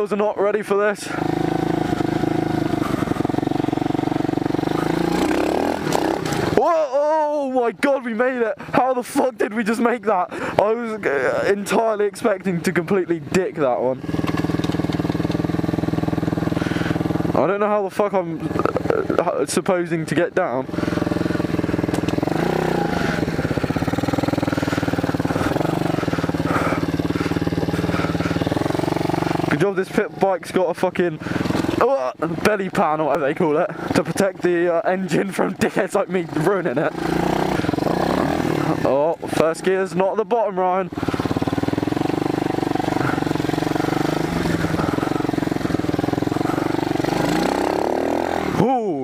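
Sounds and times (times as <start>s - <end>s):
small motorcycle engine revving: 1.0s - 7.2s, 13.3s - 17.6s, 18.4s - 19.4s, 20.4s - 39.8s, 40.9s - 48.9s.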